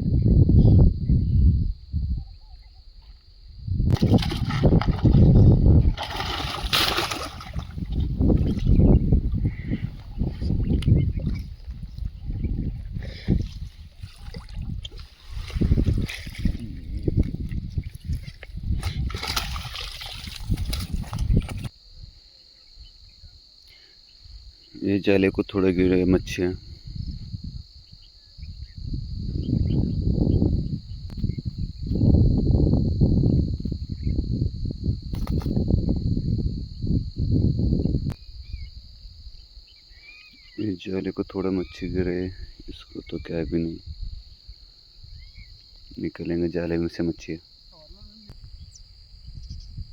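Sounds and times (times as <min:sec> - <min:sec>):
crickets chirring: 0:00.0 - 0:49.9
river water splashing: 0:04.0 - 0:07.9, 0:19.0 - 0:21.1.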